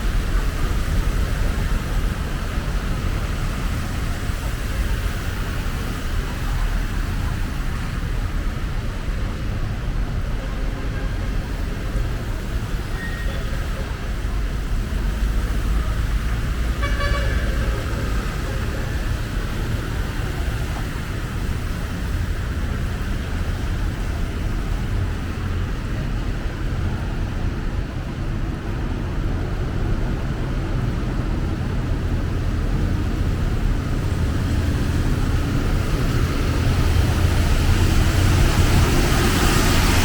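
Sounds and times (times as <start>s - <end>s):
road traffic rumble: 0.0s - 40.0s
vehicle horn toot: 16.7s - 17.9s.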